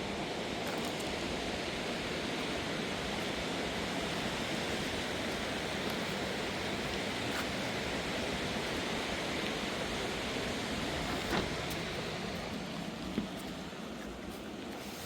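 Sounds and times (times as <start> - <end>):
rushing river water: 0.0 - 15.0.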